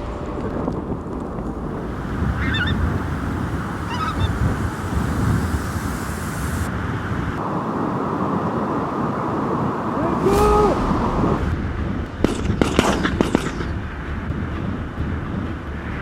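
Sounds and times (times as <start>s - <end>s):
wind buffeting microphone: 0.0s - 16.0s
geese calling: 1.4s - 6.0s.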